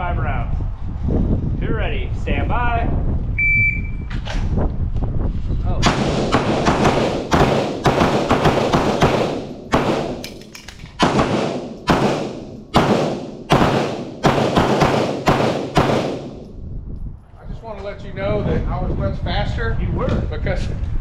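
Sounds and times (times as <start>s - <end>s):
pistol shots echoing: 5.8s - 16.5s.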